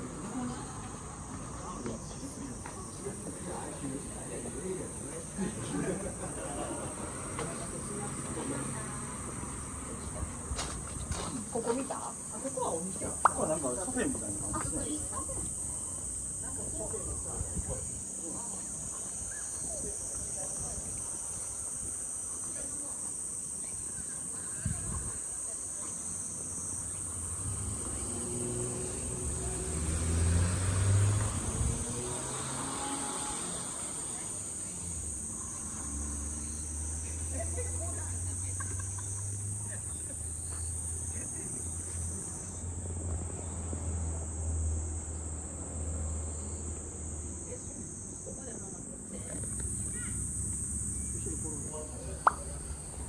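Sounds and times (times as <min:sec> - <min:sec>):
insects shrilling: 0:11.3 - 0:53.0
low engine hum: 0:27.1 - 0:53.0.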